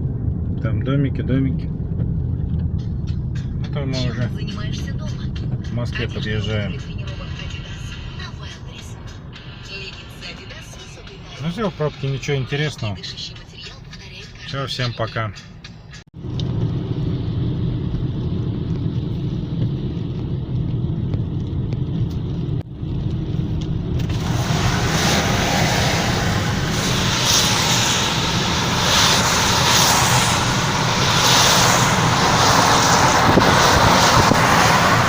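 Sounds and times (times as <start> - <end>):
engine and tyre drone: 0.0 - 14.7, 15.4 - 35.0
wind and tyre hiss: 16.2 - 35.0.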